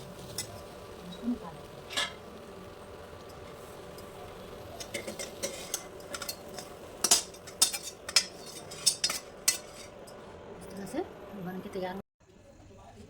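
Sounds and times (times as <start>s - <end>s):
metal spoon scraping a pan: 0.1s - 2.3s, 3.2s - 10.3s.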